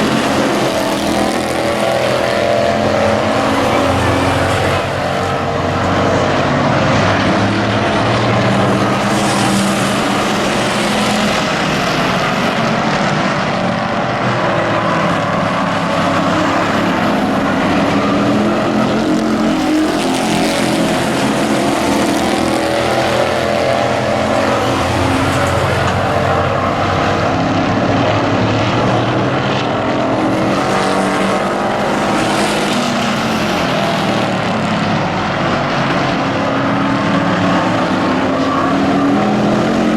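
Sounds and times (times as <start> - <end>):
race truck engines running: 0.0 - 39.9.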